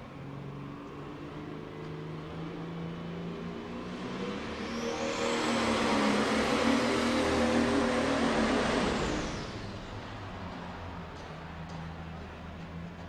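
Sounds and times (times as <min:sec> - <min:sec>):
diesel tractor engine revving: 0:04.2 - 0:09.8.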